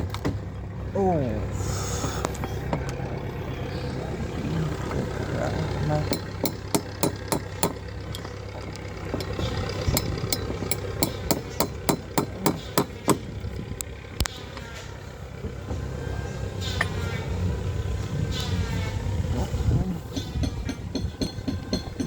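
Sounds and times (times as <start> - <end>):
steady low hum: 0.0 - 22.0
hammer tapping on metal tool: 6.1 - 7.8.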